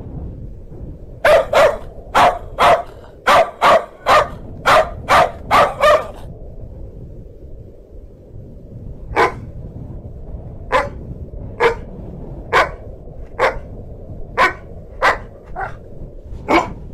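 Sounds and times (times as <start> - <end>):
dog barking loudly: 1.2 - 6.3, 9.2 - 9.4, 10.7 - 11.0, 11.6 - 11.8, 12.5 - 12.8, 13.4 - 13.7, 14.4 - 15.8, 16.5 - 16.8.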